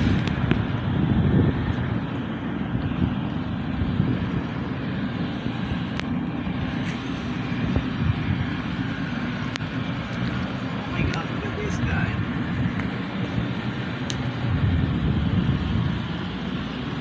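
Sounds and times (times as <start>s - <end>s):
motor vehicle engine rumbling: 0.0s - 17.0s.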